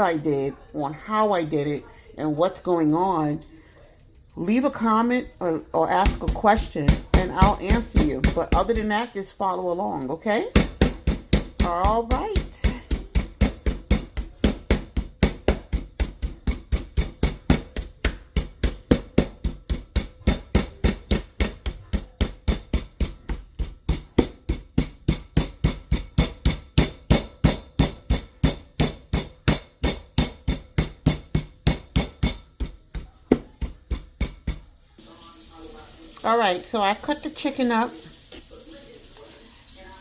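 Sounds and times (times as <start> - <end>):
knocking on cutting board: 6.0 - 8.9, 10.5 - 34.7.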